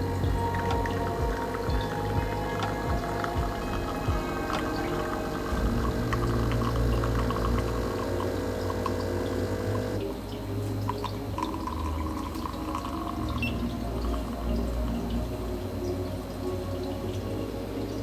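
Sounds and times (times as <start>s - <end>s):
steady high tone: 0.0s - 10.6s
steady low hum: 0.0s - 15.7s
espresso pouring and dripping: 2.5s - 10.0s.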